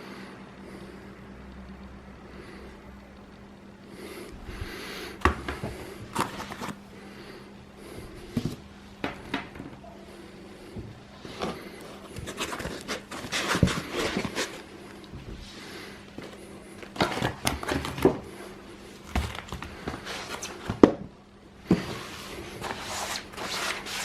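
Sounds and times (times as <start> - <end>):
parts and packaging rustling: 5.2 - 6.8, 11.2 - 24.0.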